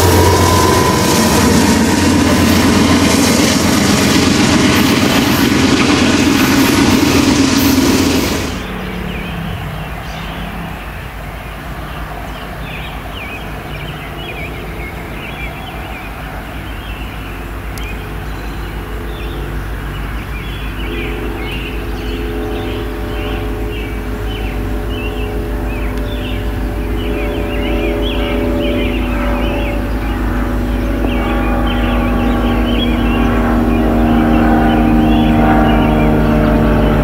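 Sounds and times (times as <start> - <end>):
train wheels rushing on rails: 0.0 - 11.8
birds chirping: 0.0 - 37.0
diesel locomotive humming: 0.0 - 37.0.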